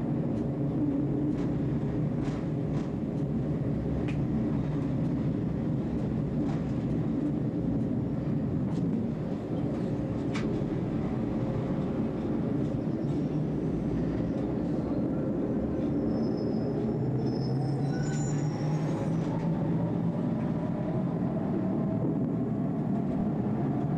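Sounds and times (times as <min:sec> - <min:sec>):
tram rumbling on track: 0:00.0 - 0:23.9
wheel squeal: 0:15.8 - 0:19.4.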